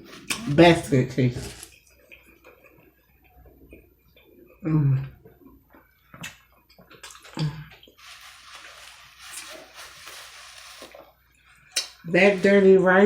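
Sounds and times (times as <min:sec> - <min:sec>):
steady wet hiss: 0:00.0 - 0:01.6, 0:08.0 - 0:11.0, 0:12.1 - 0:13.0.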